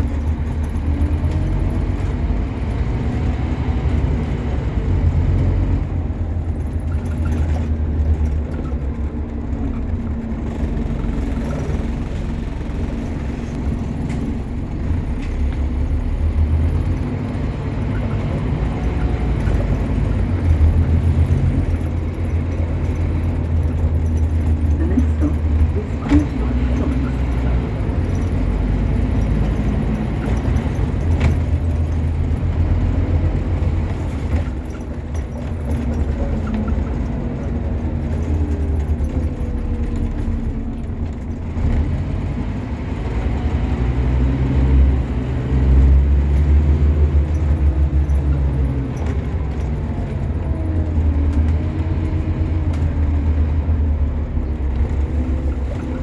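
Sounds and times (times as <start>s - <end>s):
bus engine droning: 0.0s - 56.0s.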